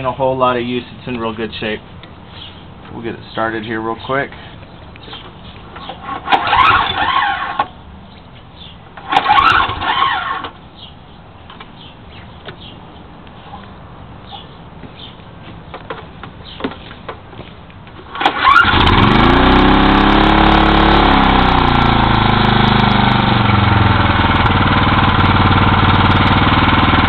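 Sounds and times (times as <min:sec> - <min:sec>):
outboard motor starting and running: 0:05.8 - 0:07.8, 0:09.0 - 0:10.6, 0:18.0 - 0:27.0.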